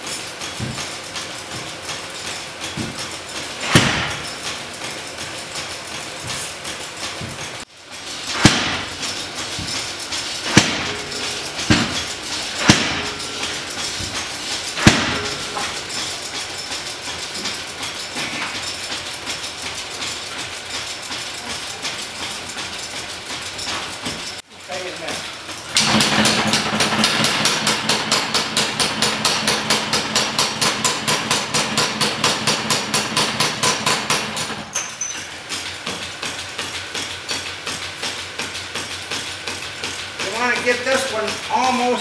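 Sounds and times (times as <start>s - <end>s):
hammer striking metal: 0.0s - 7.6s, 8.2s - 19.5s.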